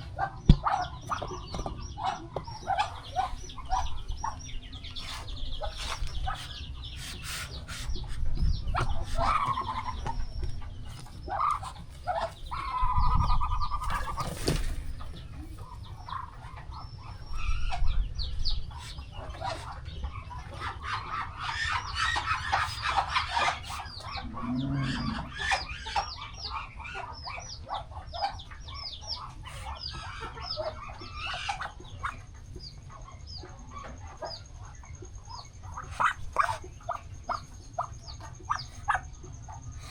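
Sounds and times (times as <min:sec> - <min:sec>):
chickens clucking: 0:00.0 - 0:39.9
chicks peeping: 0:00.0 - 0:39.9
drawn-out hen call: 0:20.8 - 0:25.9.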